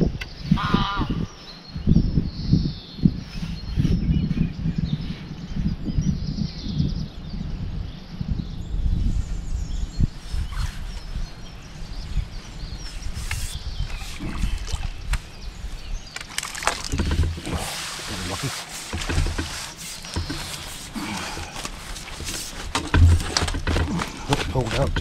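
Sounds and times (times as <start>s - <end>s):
wind buffeting microphone: 0.0s - 25.0s
handling knocks and rustles: 16.1s - 25.0s.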